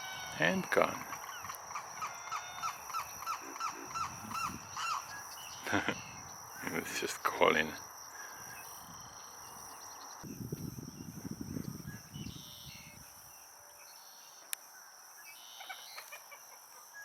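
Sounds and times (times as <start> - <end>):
bird calls: 0.0 - 10.3, 15.2 - 17.0
insect trill: 0.0 - 17.0.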